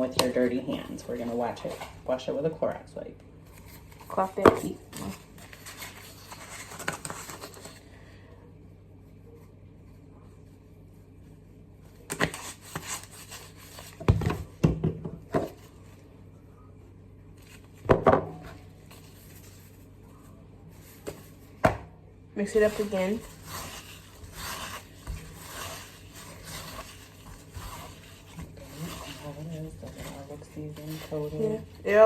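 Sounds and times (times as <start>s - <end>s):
kitchen knocks and clatters: 14.0s - 15.6s, 17.8s - 18.6s
crinkly rustle: 22.5s - 32.0s.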